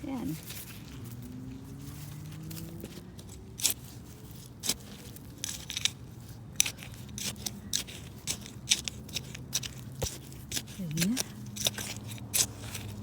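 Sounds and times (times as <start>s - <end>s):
hand digging crunches in soil: 0.0s - 13.0s.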